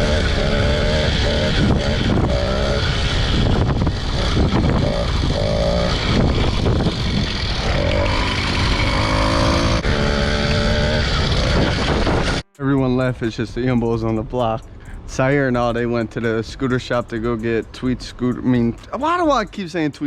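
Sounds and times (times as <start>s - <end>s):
motorbike engine revving: 0.0s - 12.5s.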